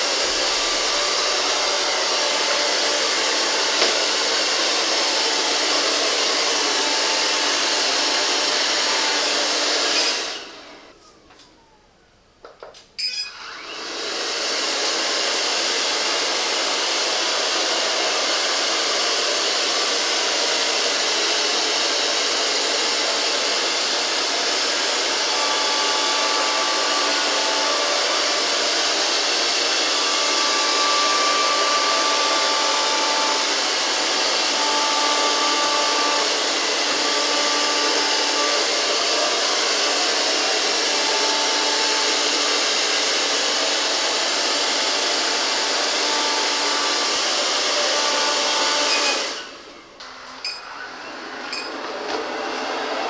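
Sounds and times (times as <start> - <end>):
robot vacuum whirring hiss: 0.0 - 11.7.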